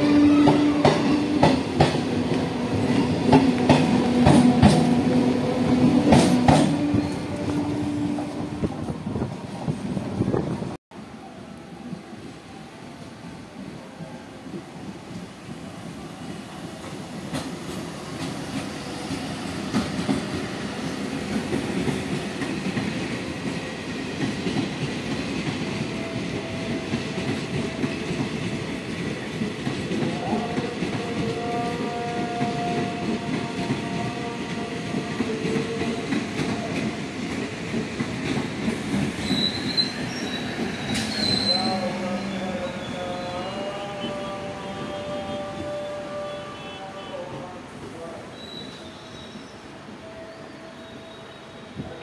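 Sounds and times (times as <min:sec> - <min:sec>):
train rumbling past: 0:00.0 - 0:52.0
high wheel squeal: 0:39.2 - 0:43.7, 0:48.3 - 0:51.6.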